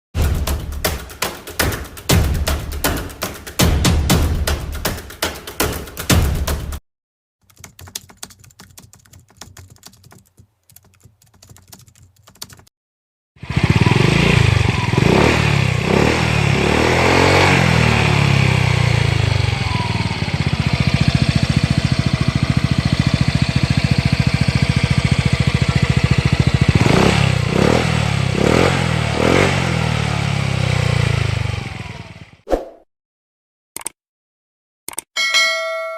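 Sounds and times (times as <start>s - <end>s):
scooter engine idling and revving: 13.4s - 32.4s.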